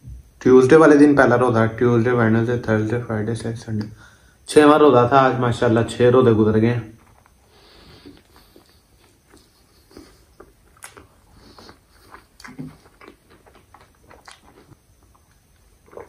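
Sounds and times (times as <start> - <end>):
chewing and mouth sounds: 8.0 - 16.0.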